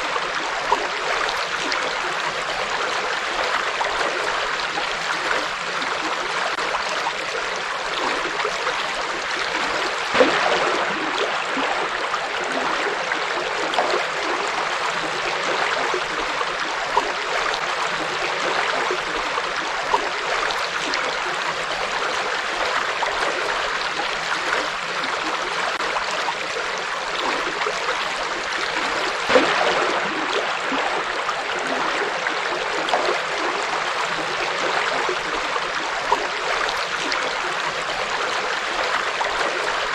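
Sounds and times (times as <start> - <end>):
river water babbling: 0.0 - 39.9
small water splashes: 0.0 - 39.9.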